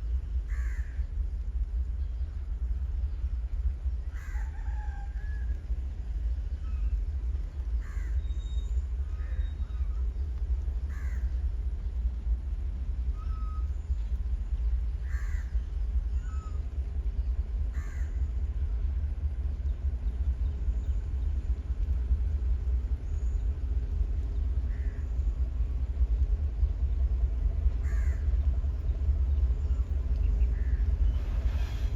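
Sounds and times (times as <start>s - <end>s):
steady low rumble: 0.0s - 31.9s
crows cawing: 0.5s - 1.0s, 4.2s - 4.8s, 10.9s - 11.3s, 15.0s - 15.5s, 17.7s - 18.2s, 27.8s - 28.2s.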